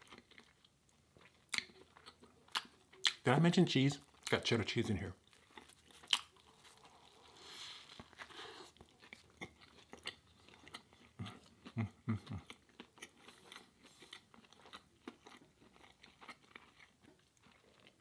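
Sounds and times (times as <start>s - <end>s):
person chewing: 0.0s - 3.2s, 4.0s - 18.0s
biting into a sandwich: 5.3s - 18.0s.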